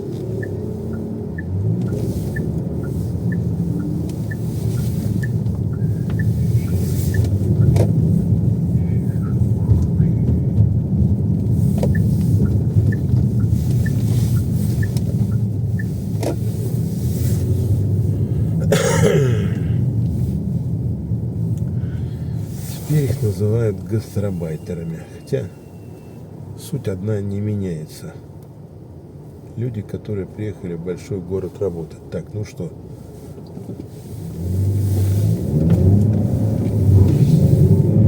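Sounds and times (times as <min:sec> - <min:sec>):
car engine and road rumble: 0:00.0 - 0:38.0
turn-signal indicator ticking: 0:00.1 - 0:08.0, 0:11.8 - 0:16.4.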